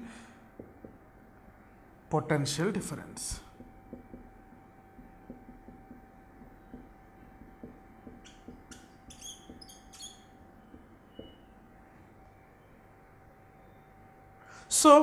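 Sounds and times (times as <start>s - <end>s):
faint steady hum: 0.0s - 15.0s
writing on a board: 3.5s - 11.4s
marker squeaks: 8.0s - 11.6s.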